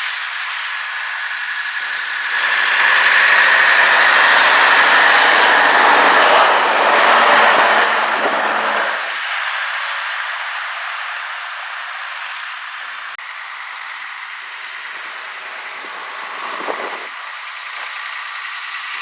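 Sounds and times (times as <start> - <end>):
diesel truck driving past: 1.2 - 9.4.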